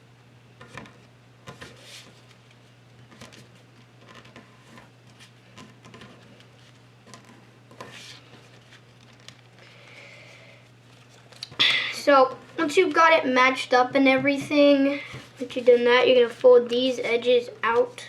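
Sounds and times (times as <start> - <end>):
low steady hum: 0.0 - 18.0
paper being folded and creased: 1.5 - 9.6, 10.8 - 11.6, 15.1 - 18.0.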